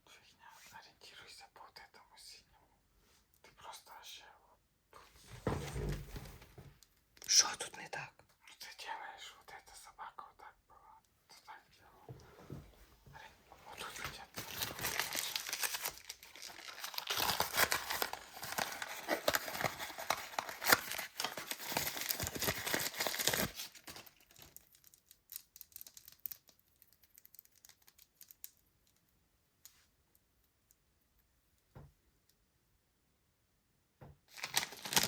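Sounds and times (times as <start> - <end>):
toy packaging crinkling and tearing: 13.8 - 28.6, 34.3 - 35.0.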